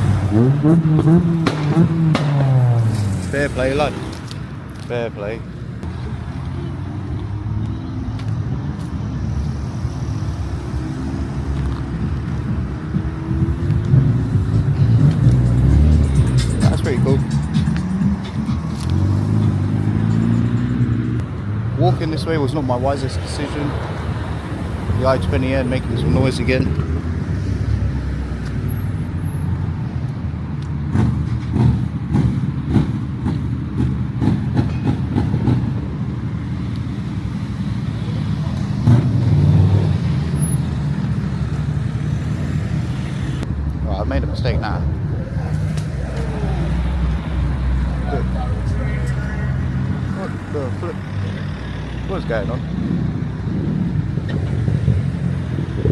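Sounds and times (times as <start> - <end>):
car engine rumbling: 0.0 - 55.9.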